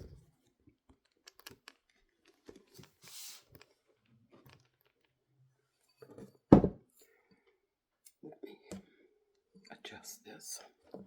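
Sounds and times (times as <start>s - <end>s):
quiet eating sounds: 0.1s - 6.3s.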